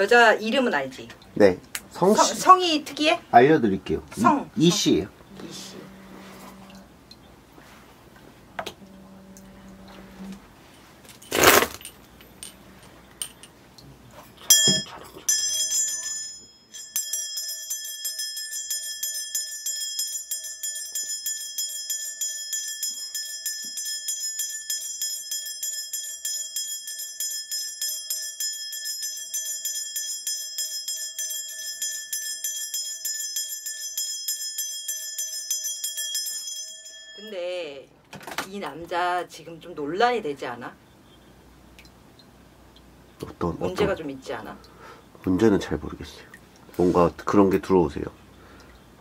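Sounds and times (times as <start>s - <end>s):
bells shaken jingling: 14.5s - 37.5s.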